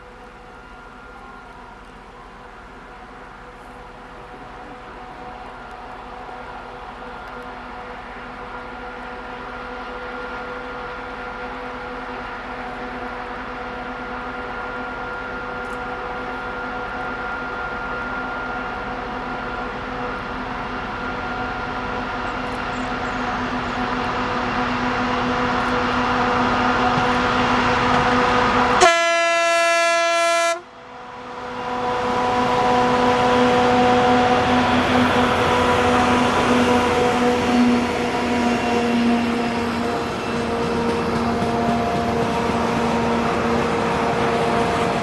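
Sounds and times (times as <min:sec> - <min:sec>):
freight train rumbling past: 0:00.0 - 0:45.0
train whining tones: 0:00.0 - 0:45.0
locomotive horn blast: 0:26.3 - 0:30.7, 0:31.4 - 0:45.0.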